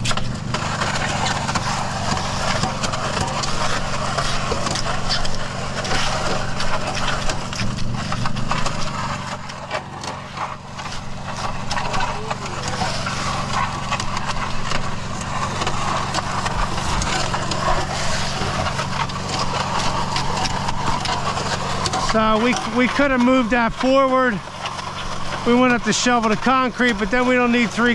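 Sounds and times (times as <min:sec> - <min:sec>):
small engine running: 0:00.0 - 0:27.9.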